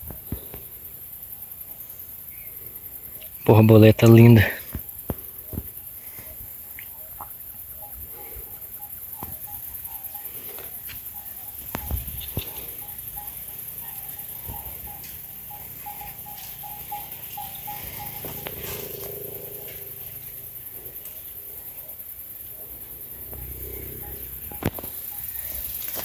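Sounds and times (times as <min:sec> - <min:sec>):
rapidly repeated chirp: 0:00.6 - 0:26.0
steady high-pitched buzz: 0:09.2 - 0:26.0.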